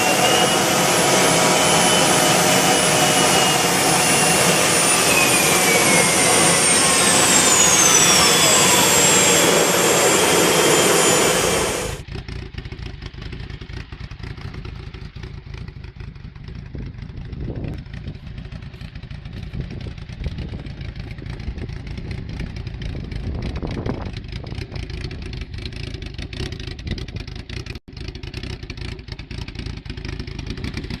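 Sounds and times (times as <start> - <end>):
loud rushing with falling whine: 0.0 - 12.0
engine rumbling: 0.0 - 31.0.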